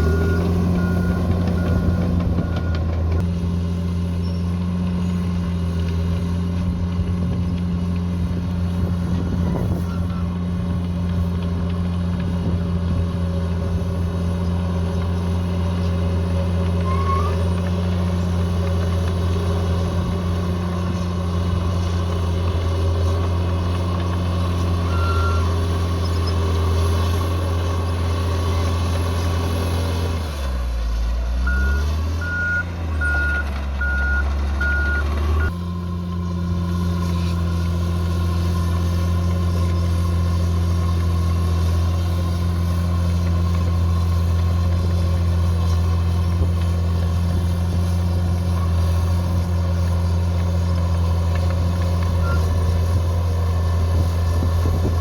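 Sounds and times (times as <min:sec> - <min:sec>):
reversing alarm beeping: 0:00.0 - 0:02.9, 0:24.8 - 0:25.5, 0:31.4 - 0:35.6, 0:52.2 - 0:52.6
diesel bulldozer engine running: 0:00.0 - 0:55.0.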